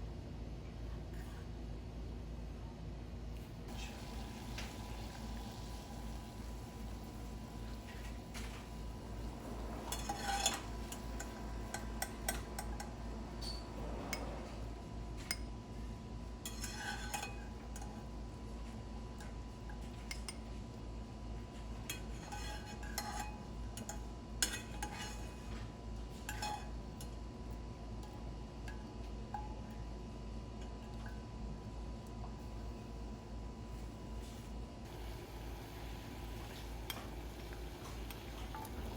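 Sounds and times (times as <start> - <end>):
steady low hum: 0.0 - 38.9
utensils and dishes clinking: 7.9 - 14.6, 16.4 - 18.1, 21.8 - 27.2, 36.4 - 38.9.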